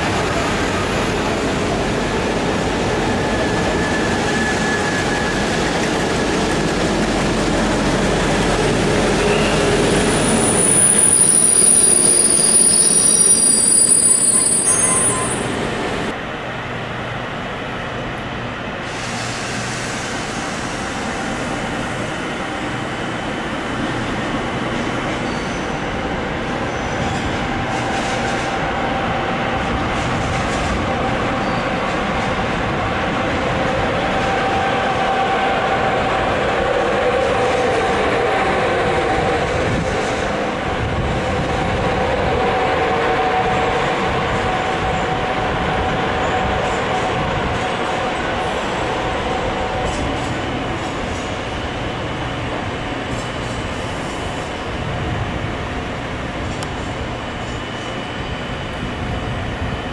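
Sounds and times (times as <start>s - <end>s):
train rolling past: 0.0s - 59.9s
wheel squeal: 9.2s - 15.6s.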